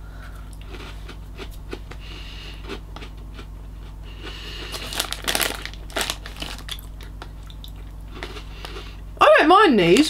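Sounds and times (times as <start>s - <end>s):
low steady hum: 0.0s - 10.0s
crackers crunching: 0.3s - 9.0s
foil snack bag crinkling: 4.6s - 7.4s.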